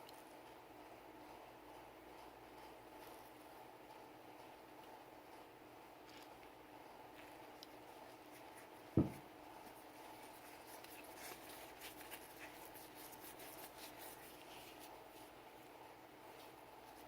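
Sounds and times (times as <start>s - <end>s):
soft knock: 9.0s - 9.3s
light scratching and rubbing: 9.6s - 15.4s.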